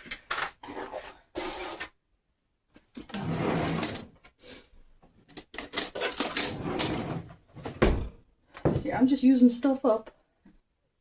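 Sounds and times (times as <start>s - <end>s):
utensils and containers scraping: 0.6s - 1.9s.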